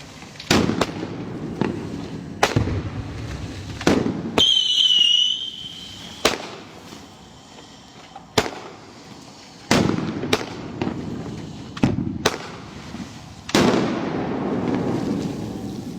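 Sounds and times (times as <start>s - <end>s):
firework bangs: 0.0s - 15.9s
noisy rumble: 1.0s - 4.4s
firework whistle: 2.7s - 15.9s.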